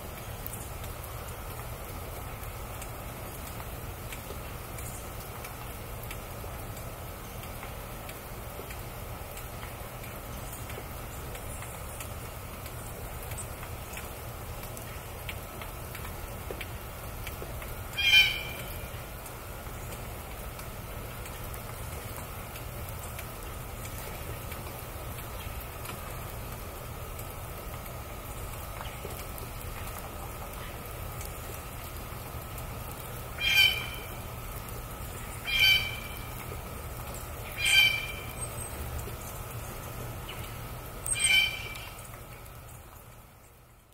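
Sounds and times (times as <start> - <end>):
bird calling loudly: 17.9 - 18.8, 33.4 - 34.2, 35.4 - 36.2, 37.5 - 38.5, 41.1 - 42.0.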